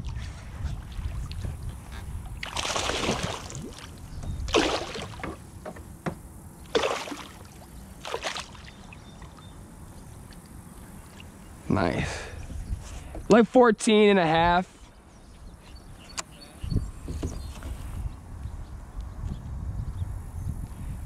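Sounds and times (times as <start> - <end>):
fish splashing in water: 2.4 - 5.4, 6.7 - 9.0.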